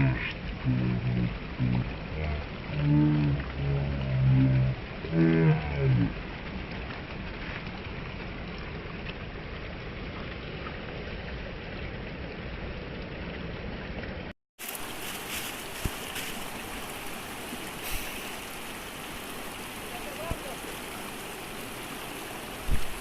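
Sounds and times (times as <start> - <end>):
low drawn-out pitched tones: 0.0 - 6.2
river water rushing: 14.6 - 23.0.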